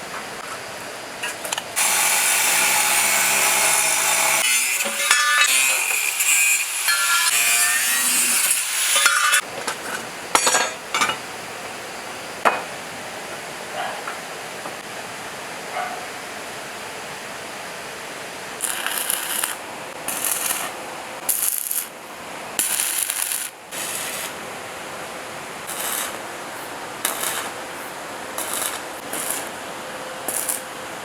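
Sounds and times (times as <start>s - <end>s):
steady background hiss: 4.8s - 31.0s.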